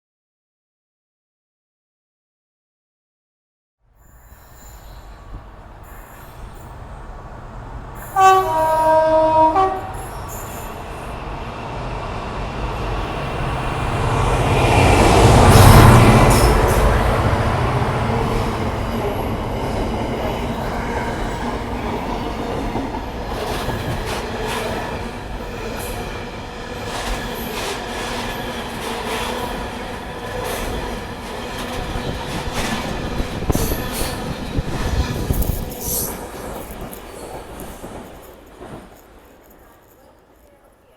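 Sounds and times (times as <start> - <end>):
diesel train rumbling: 4.5 - 40.7
two-note train horn: 8.1 - 10.1
wheels clicking on rails: 26.8 - 40.8.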